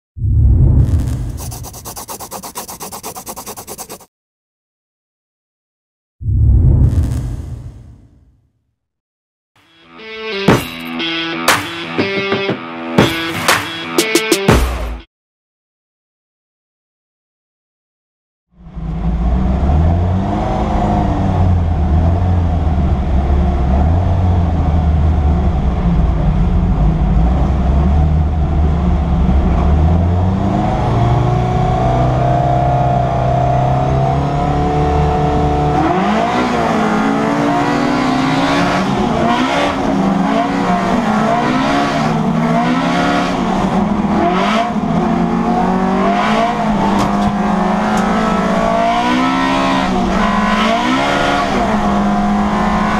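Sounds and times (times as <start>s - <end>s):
race car engine revving: 18.8s - 52.9s.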